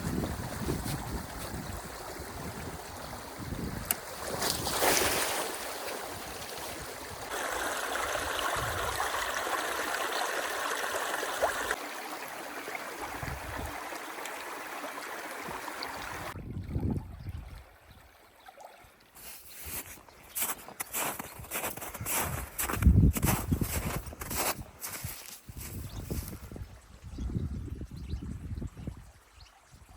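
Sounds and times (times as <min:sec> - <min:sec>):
water rushing through canal: 0:00.0 - 0:20.4
water trickling: 0:06.1 - 0:22.2.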